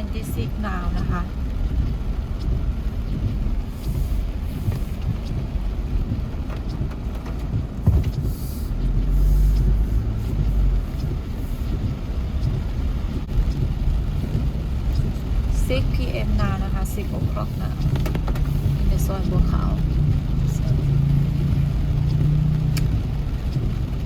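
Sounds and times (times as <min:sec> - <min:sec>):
car engine and tyre rumble: 0:00.0 - 0:24.0.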